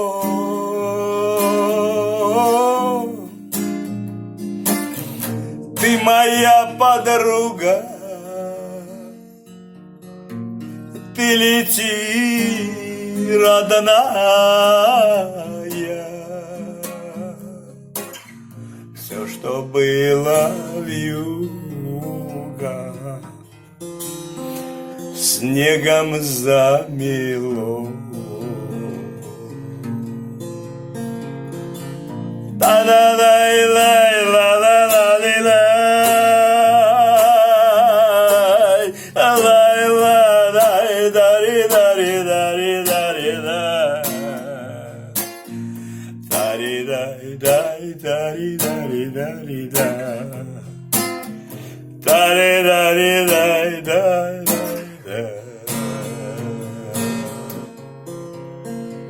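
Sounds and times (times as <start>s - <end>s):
person singing wordless long notes: 0.0s - 3.5s, 5.8s - 9.4s, 11.2s - 18.0s, 19.0s - 23.4s, 25.4s - 29.8s, 32.6s - 50.9s, 51.8s - 57.8s
acoustic guitar strumming: 0.0s - 59.0s.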